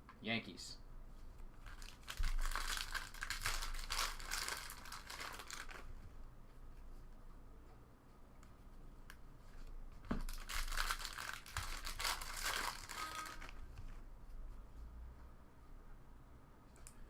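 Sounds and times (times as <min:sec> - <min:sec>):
foil wrapper tearing and crinkling: 0:01.6 - 0:05.9, 0:10.2 - 0:13.6.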